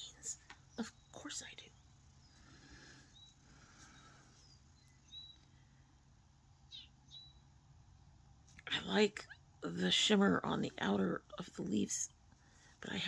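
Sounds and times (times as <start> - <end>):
faint high chirps: 3.0 - 5.7.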